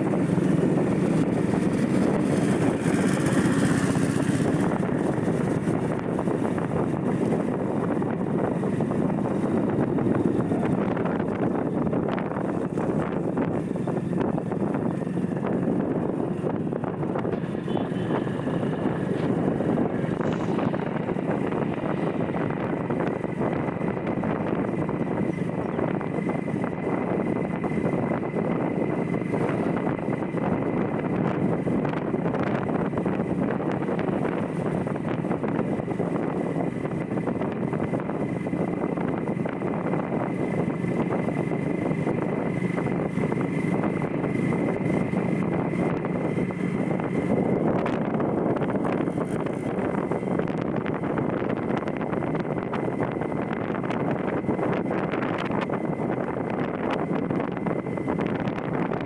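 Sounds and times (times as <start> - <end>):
motorbike engine: 0.0 - 59.0
wind buffeting microphone: 0.0 - 59.0.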